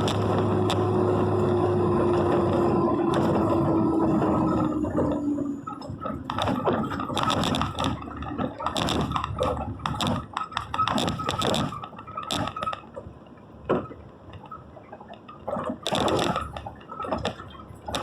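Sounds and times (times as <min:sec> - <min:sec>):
vehicle engine slowing down: 0:00.0 - 0:07.2
irregular knocks and clattering: 0:00.0 - 0:12.8.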